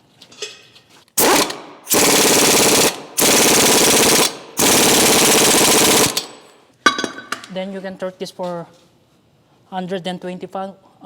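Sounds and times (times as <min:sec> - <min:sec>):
impact wrench hammering: 0:01.2 - 0:07.2.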